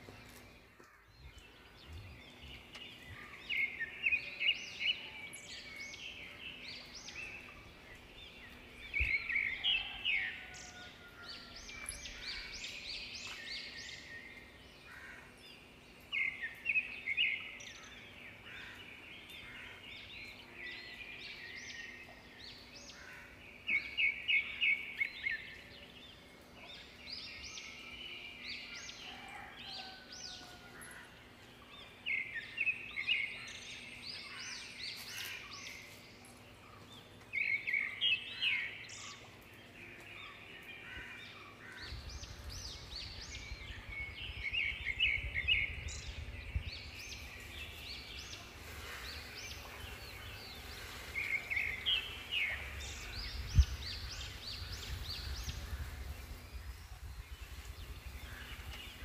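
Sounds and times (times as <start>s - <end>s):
other birds calling faintly: 0.0s - 59.0s
songbird rapid chirping: 0.0s - 59.0s.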